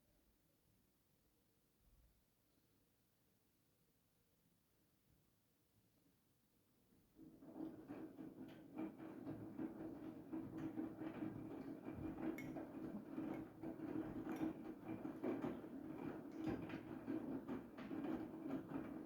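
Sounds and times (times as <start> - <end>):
washing machine drum motor hum: 7.2 - 19.0.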